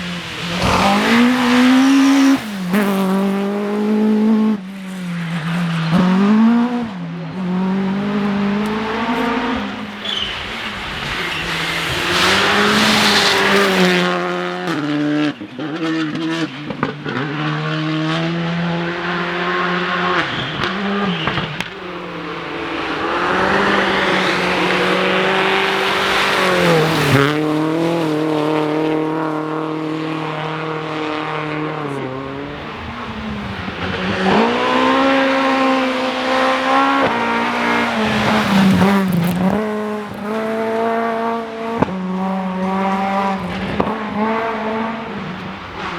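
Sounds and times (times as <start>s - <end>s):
rally car engine revving: 0.0s - 45.9s
tyre and road noise: 0.0s - 45.9s.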